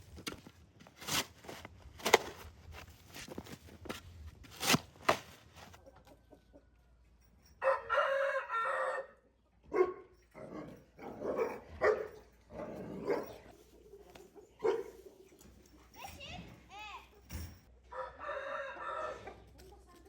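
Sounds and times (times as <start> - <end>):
chickens clucking: 5.8 - 6.9, 13.3 - 15.6
rooster crowing: 7.6 - 9.2, 17.9 - 19.4.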